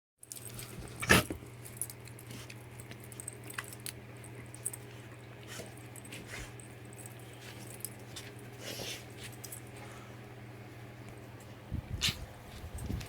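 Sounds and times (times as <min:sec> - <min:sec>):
light clicks and jingles: 0:01.6 - 0:09.8.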